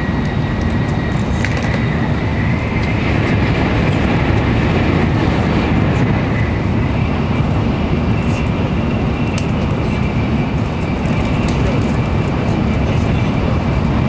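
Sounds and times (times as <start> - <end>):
train interior rumble: 0.0 - 14.0.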